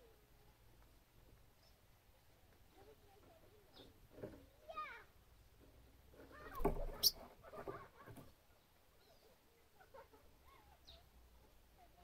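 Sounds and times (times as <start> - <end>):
small bird chirping: 3.5 - 4.0, 6.4 - 7.3, 10.5 - 11.1.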